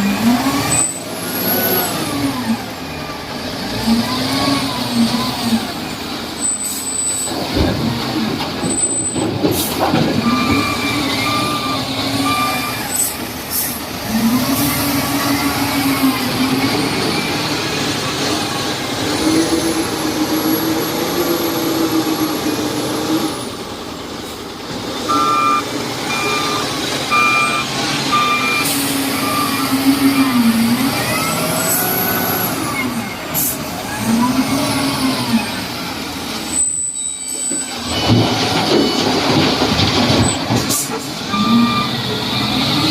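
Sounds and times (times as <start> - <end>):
diesel engine revving: 0.0 - 36.9, 37.7 - 42.9
reversing alarm beeping: 10.2 - 13.2, 25.1 - 30.6, 41.3 - 42.8.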